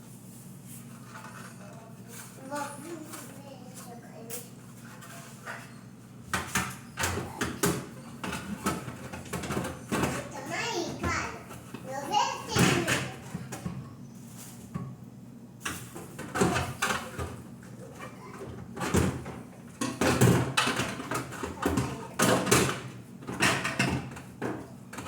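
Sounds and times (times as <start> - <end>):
objects knocking and clattering: 6.2 - 14.0, 15.6 - 25.0.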